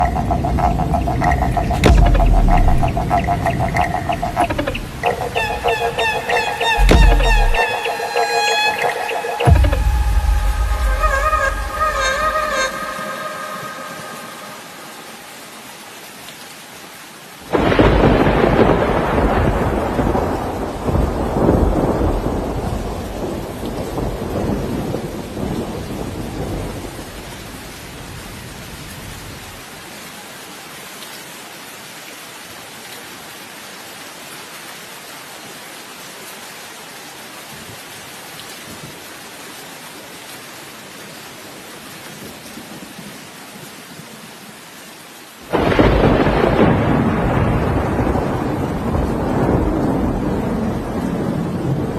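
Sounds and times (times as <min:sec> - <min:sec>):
thunder clap and rumble: 0:00.0 - 0:07.8, 0:17.5 - 0:27.0, 0:45.5 - 0:51.9
steady rain: 0:00.0 - 0:51.9.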